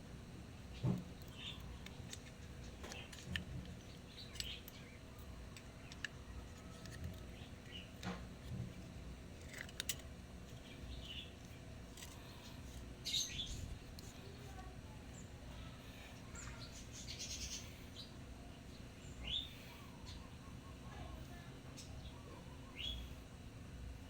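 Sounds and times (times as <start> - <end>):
small metal parts clicking: 1.0 - 12.9.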